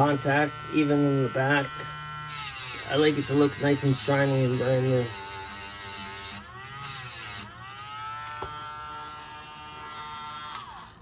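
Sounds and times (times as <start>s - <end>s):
small electric motor tool whining: 0.0s - 11.0s.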